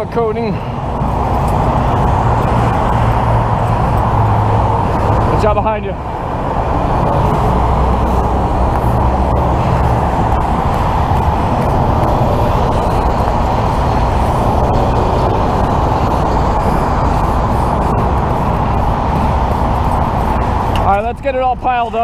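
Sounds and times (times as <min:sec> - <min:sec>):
freeway road noise: 0:00.0 - 0:22.0
truck engine running: 0:00.0 - 0:22.0.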